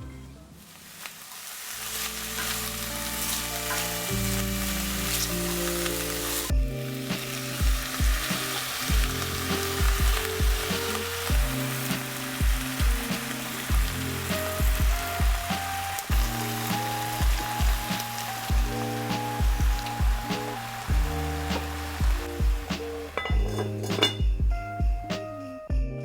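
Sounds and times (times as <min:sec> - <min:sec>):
food sizzling in a pan: 0:00.6 - 0:24.3
instrumental background music: 0:01.8 - 0:26.0
low drum thumps: 0:06.5 - 0:06.8, 0:07.6 - 0:11.7, 0:12.4 - 0:13.1, 0:13.7 - 0:14.0, 0:14.6 - 0:15.5, 0:16.1 - 0:16.4, 0:17.2 - 0:25.2.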